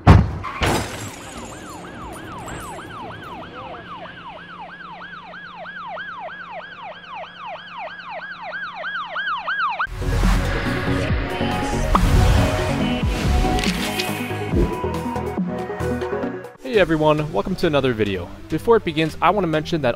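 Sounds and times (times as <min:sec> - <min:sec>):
emergency siren yelping: 0:01.1 - 0:09.9.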